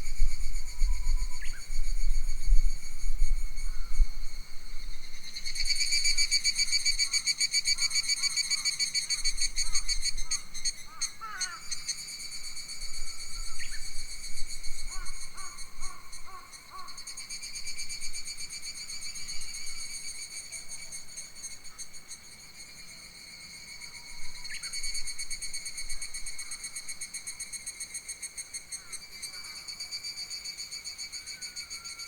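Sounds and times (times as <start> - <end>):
wind on microphone: 0.0 - 5.2.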